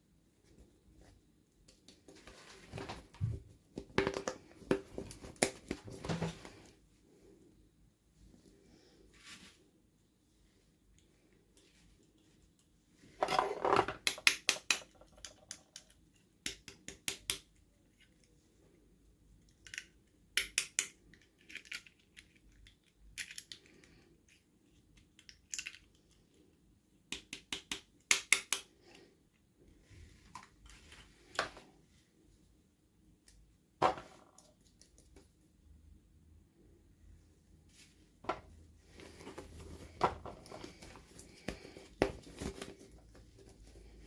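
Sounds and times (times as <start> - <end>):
plastic parts clicking: 19.5 - 23.7, 25.0 - 26.2.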